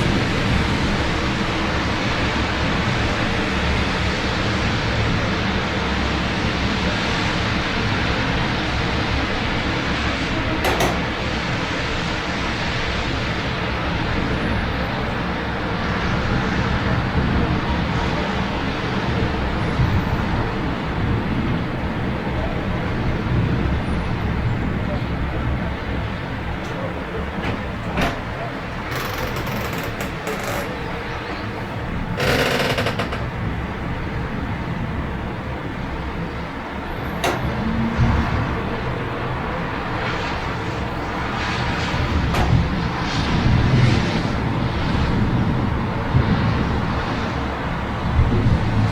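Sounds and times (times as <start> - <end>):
city traffic: 0.0 - 48.9
steady rain: 0.0 - 48.9
rapid rattling clatter: 26.7 - 33.6.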